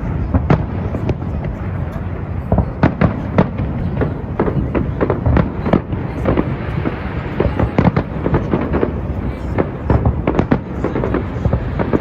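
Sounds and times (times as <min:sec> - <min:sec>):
fireworks bangs and crackles: 0:00.0 - 0:12.0
low rumble of fireworks display: 0:00.0 - 0:12.0.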